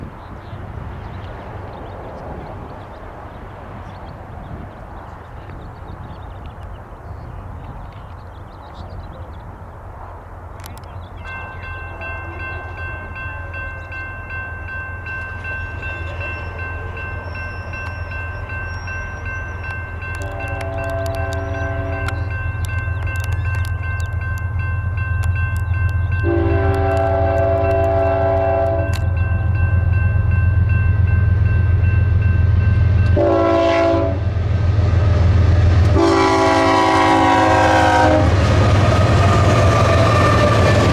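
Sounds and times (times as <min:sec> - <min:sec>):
locomotive engine rumble: 0:00.0 - 0:40.9
railroad crossing bells ringing: 0:10.6 - 0:34.3, 0:35.8 - 0:40.9
locomotive horn blasts: 0:11.3 - 0:30.0, 0:32.1 - 0:34.3, 0:35.8 - 0:40.9.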